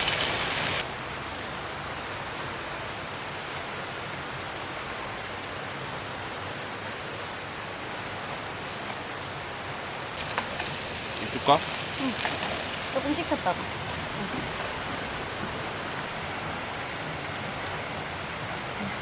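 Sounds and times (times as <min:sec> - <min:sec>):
stream flowing: 0:00.0 - 0:19.0.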